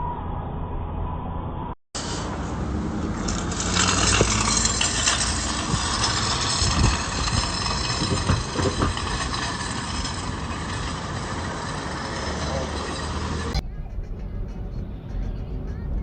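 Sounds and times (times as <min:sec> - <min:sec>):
knocks and rattles: 0:02.0 - 0:13.6
vehicle road and engine noise: 0:02.0 - 0:16.0.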